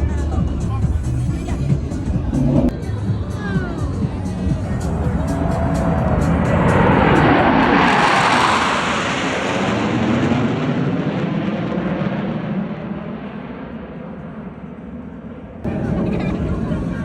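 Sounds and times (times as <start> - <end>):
jet flying past: 3.8 - 17.0.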